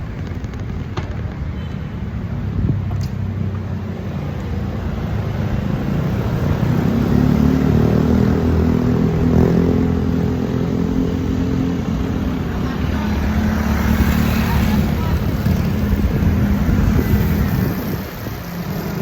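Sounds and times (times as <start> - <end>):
street traffic: 0.0 - 19.0
vehicle engine passing: 5.4 - 19.0.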